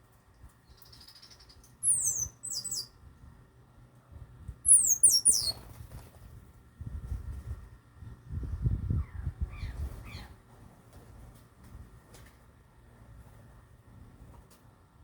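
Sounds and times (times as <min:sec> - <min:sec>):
small birds chirping: 0:00.6 - 0:03.0, 0:04.6 - 0:05.8.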